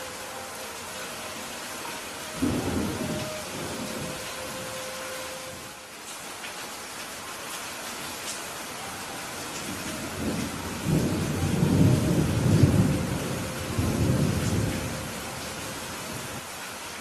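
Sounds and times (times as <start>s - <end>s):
steady rain hiss: 0.0s - 17.0s
thunder rumbling: 2.4s - 5.7s, 9.6s - 16.4s.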